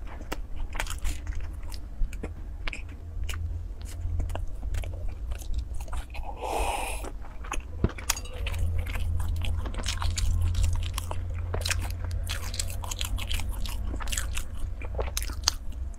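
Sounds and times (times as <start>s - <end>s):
mouth chewing wet clicks: 0.0s - 15.9s
steady low hum: 0.0s - 15.9s
short breath: 6.2s - 7.1s.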